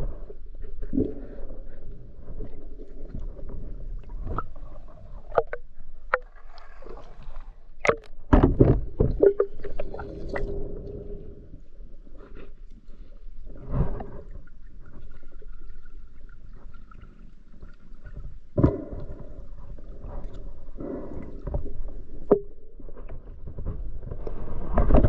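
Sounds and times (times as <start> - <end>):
water gurgling: 8.9 - 11.4.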